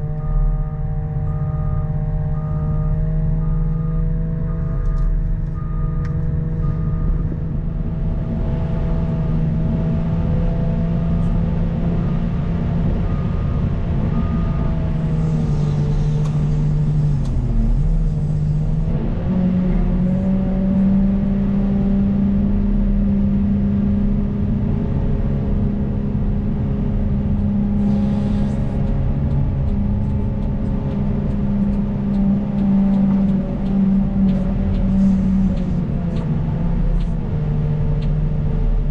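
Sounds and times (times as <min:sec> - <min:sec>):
backup alarm beeping: 0:00.0 - 0:08.6, 0:12.0 - 0:18.1
diesel engine working: 0:00.0 - 0:38.9.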